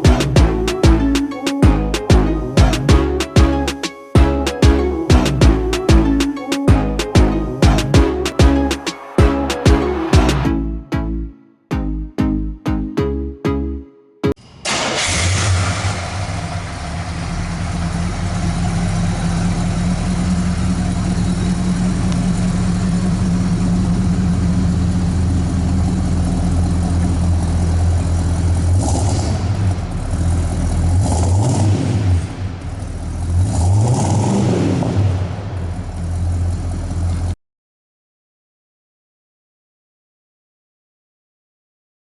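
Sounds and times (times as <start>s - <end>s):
car engine idling and revving: 14.7s - 37.4s.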